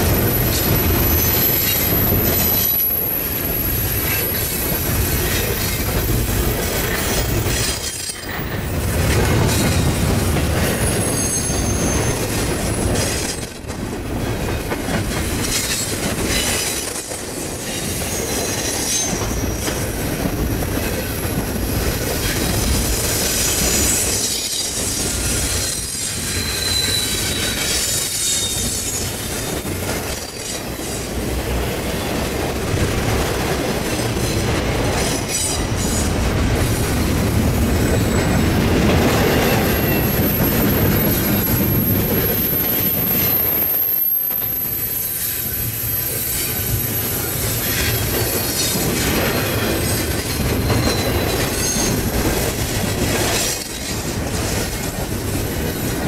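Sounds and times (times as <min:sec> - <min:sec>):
steel wheels squealing: 0:00.0 - 0:05.9, 0:10.6 - 0:13.6, 0:15.4 - 0:20.0, 0:22.2 - 0:31.1, 0:37.8 - 0:52.2
freight train rumbling past: 0:00.0 - 0:56.0.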